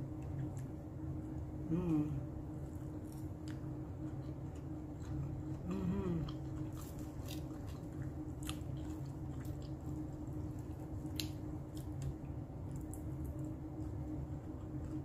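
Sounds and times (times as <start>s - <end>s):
steady low hum: 0.0s - 15.0s
person humming: 1.6s - 2.3s, 5.6s - 6.4s
chewing with wet mouth smacks: 2.6s - 15.0s.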